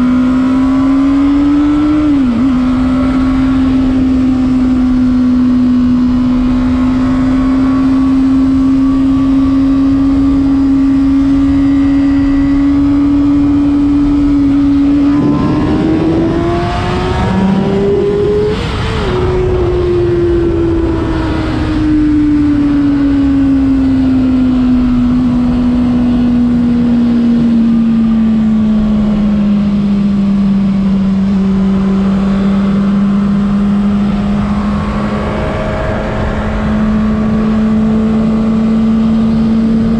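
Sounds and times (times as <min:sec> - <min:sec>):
motorcycle engine at high revs: 0:00.0 - 0:39.9
wind rushing over microphone: 0:00.0 - 0:39.9.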